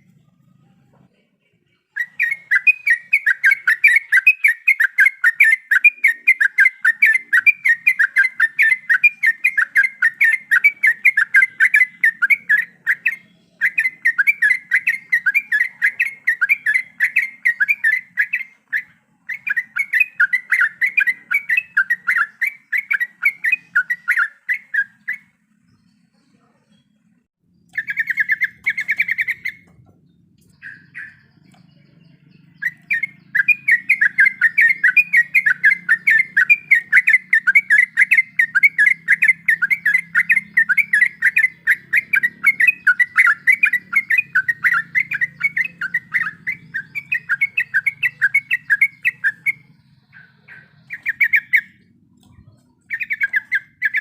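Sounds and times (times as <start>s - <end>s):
bird singing chattering notes: 0.0s - 54.0s.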